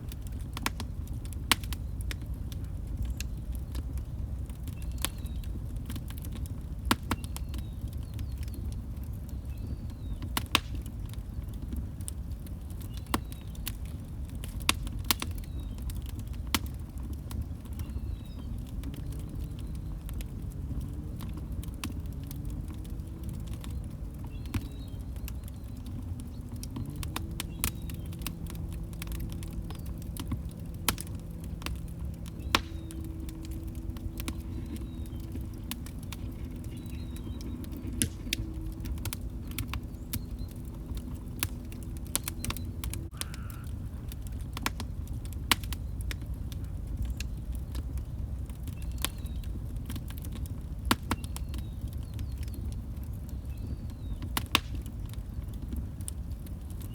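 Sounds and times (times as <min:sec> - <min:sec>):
log fire crackling and popping: 0:00.0 - 0:56.9
low wavering hum: 0:23.2 - 0:43.2.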